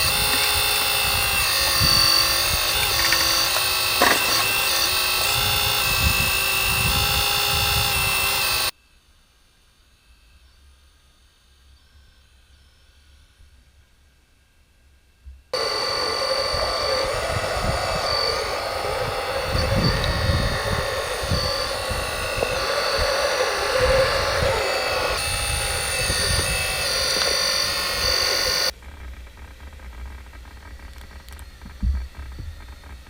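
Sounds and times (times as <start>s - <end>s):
small electric motors whining: 0.0s - 8.8s, 15.6s - 33.0s.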